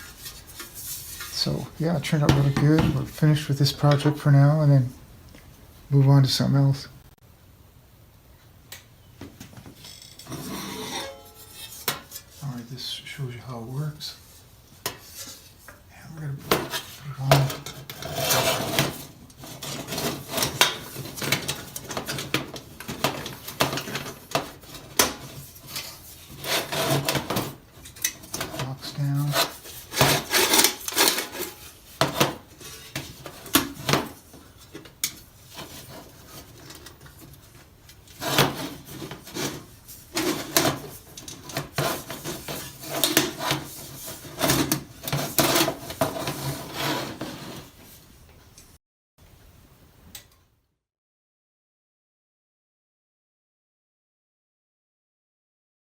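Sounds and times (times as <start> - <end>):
metal helmet plates clinking: 9.7 - 12.4.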